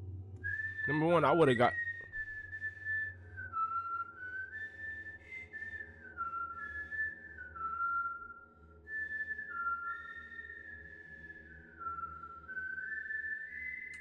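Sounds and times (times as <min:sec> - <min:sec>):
slow whistled tune: 0:00.3 - 0:14.0.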